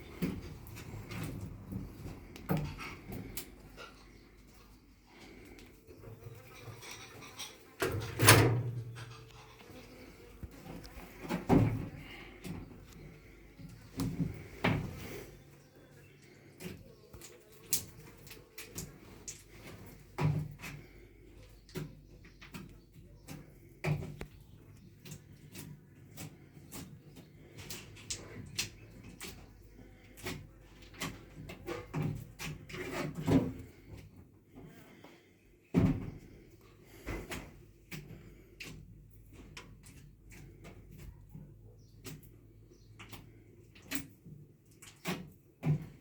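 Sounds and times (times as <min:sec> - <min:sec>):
clicks and light knocks of handling: 0:00.2 - 0:04.6, 0:16.2 - 0:35.1, 0:37.0 - 0:46.0.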